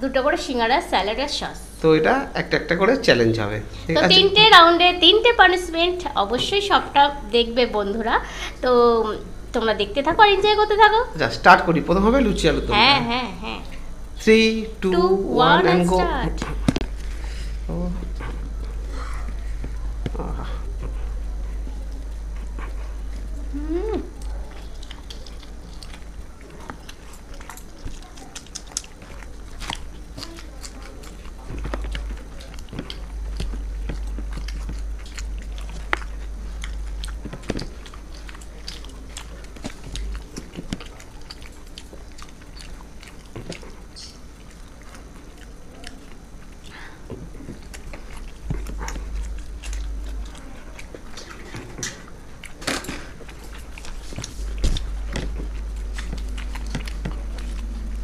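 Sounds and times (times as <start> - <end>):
low steady hum: 0.0 - 58.0
people chewing and biting: 15.5 - 58.0.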